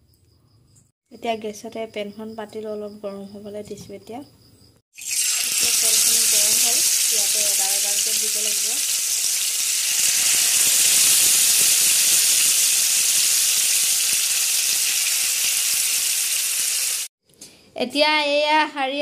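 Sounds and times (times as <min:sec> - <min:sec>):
kebabs sizzling in hot oil: 0:05.0 - 0:17.1.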